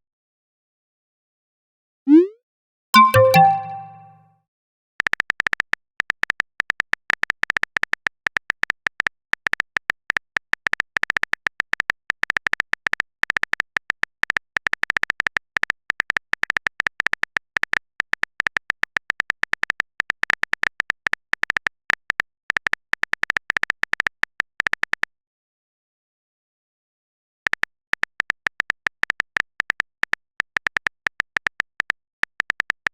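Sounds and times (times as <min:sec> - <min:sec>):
keyboard typing clicks: 0:03.0 - 0:04.1.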